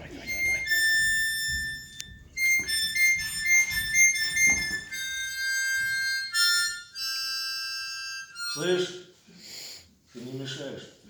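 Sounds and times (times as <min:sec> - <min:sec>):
soft low thumps: 0:00.0 - 0:06.1
harmonica playing: 0:00.0 - 0:09.2.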